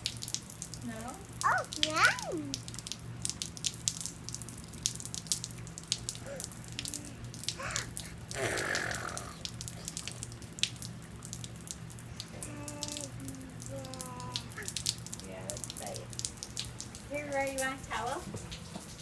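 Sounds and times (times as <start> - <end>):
rain dripping and pattering: 0.0 - 19.0
steady low hum: 0.0 - 19.0
child's voice: 1.4 - 2.6, 6.2 - 8.0, 12.4 - 14.7.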